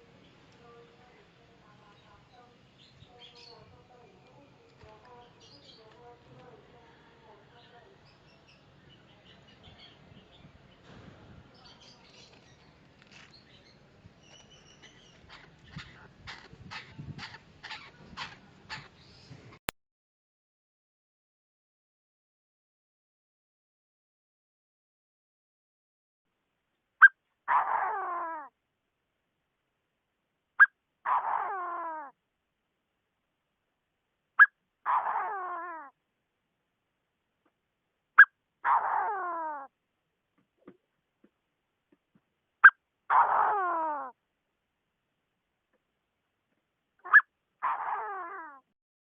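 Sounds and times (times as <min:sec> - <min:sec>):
small birds chirping: 0:00.0 - 0:19.6, 0:47.0 - 0:48.6
francolin calling: 0:47.0 - 0:47.8.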